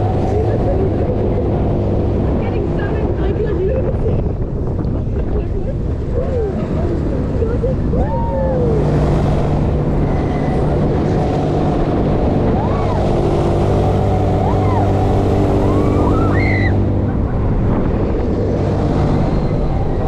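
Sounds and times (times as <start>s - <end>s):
wind rushing over microphone: 0.0s - 20.0s
machinery hum: 5.9s - 20.0s
people crying out: 7.9s - 9.0s, 12.4s - 17.6s.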